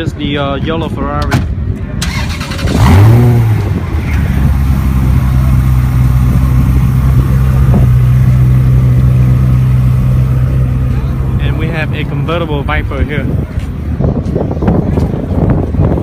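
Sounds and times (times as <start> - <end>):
car engine starting and idling: 2.0 - 13.6.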